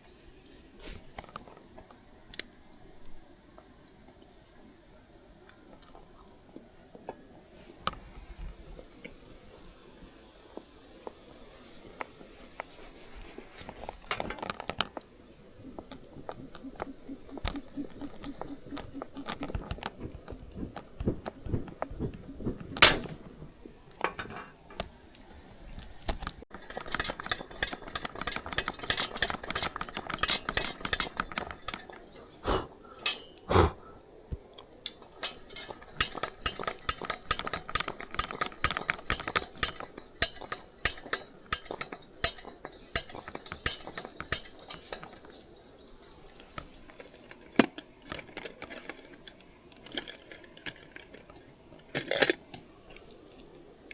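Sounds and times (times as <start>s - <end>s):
metal utensils clinking on pots: 26.5s - 32.2s, 33.0s - 33.4s, 34.9s - 45.4s.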